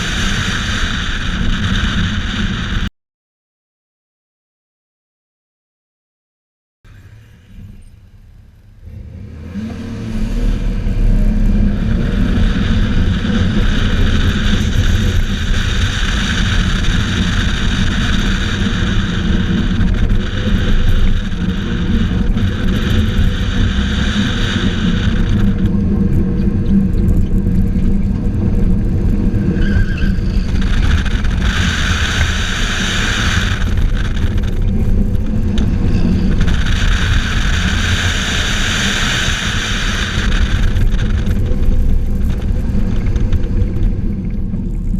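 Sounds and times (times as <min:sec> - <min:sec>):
tire squeal: 0:06.9 - 0:44.9
car engine revving hard: 0:08.8 - 0:26.9, 0:28.2 - 0:44.0.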